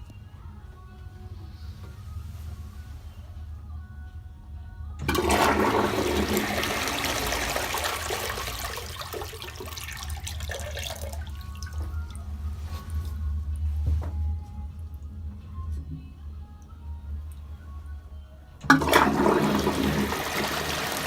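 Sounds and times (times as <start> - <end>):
toilet flushing: 5.0 - 12.1, 18.6 - 21.0
trickle of refilling water: 5.0 - 12.2, 18.7 - 21.0.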